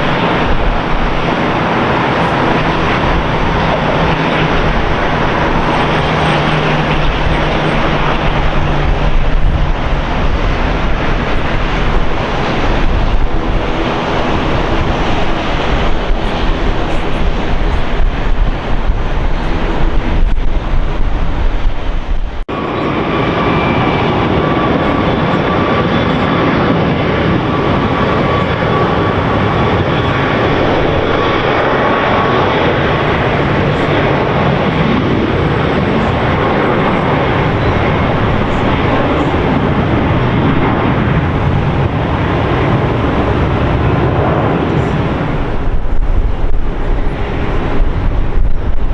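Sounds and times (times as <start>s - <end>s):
jet engines running: 0.0s - 48.9s
wind buffeting microphone: 0.0s - 48.9s.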